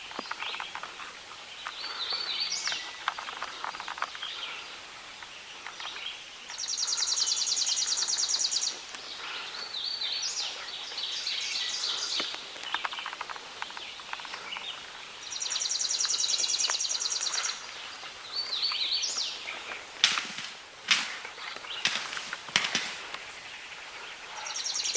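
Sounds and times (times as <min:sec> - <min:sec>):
songbird singing: 0:00.0 - 0:24.9
rustling clicks: 0:19.7 - 0:23.4.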